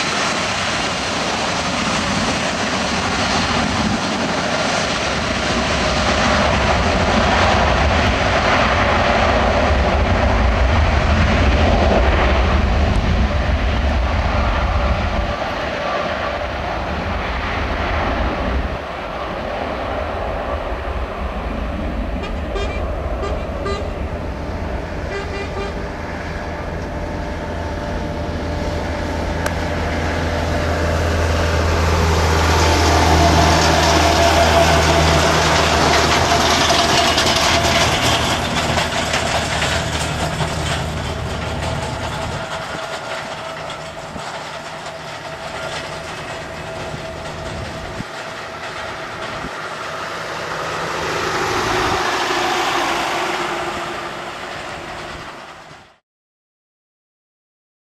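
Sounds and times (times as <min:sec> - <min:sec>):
jet airliner engines running: 0:00.0 - 0:56.0.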